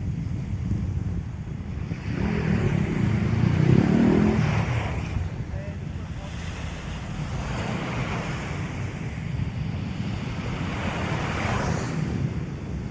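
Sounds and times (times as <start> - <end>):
wind buffeting microphone: 0.0 - 12.9
ocean surf washing ashore: 4.2 - 12.9.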